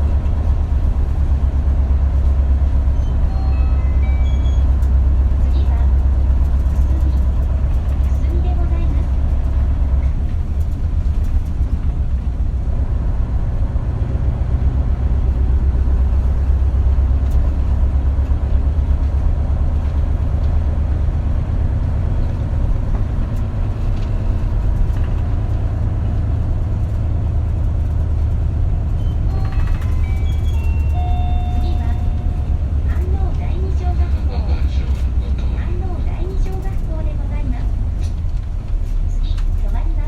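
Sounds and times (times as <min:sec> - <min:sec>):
bus engine and road drone: 0:00.0 - 0:40.0.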